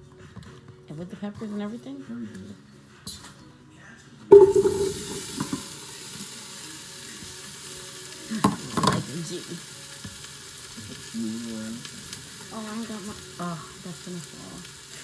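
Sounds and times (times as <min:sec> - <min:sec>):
vegetables sizzling in hot pan: 0:04.3 - 0:15.0.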